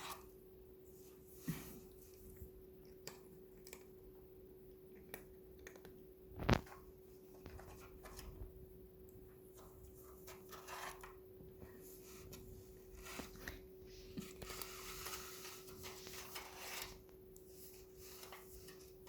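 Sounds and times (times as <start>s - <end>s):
faint steady hum: 0.0s - 19.0s
cats pawing cardboard tube: 9.5s - 19.0s.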